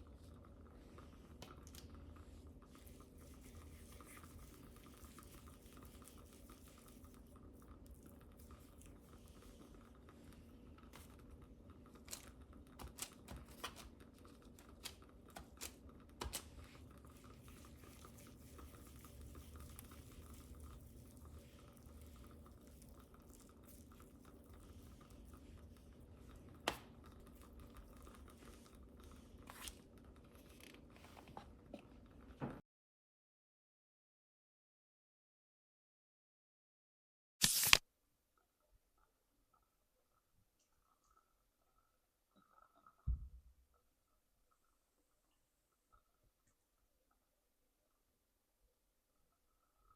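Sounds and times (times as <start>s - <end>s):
clicks and taps of baking utensils: 12.1s - 16.7s.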